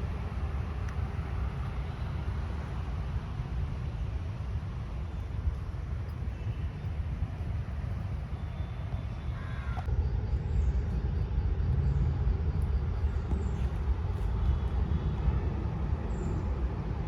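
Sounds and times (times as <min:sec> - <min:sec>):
steady low rumble: 0:00.0 - 0:17.0
crow cawing: 0:09.3 - 0:09.8.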